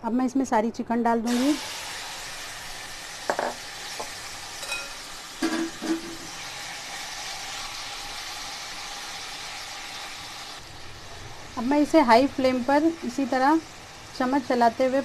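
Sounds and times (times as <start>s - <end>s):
chicken sizzling in hot oil: 1.3s - 15.0s
wooden spoon knocking on pan: 3.3s - 4.2s.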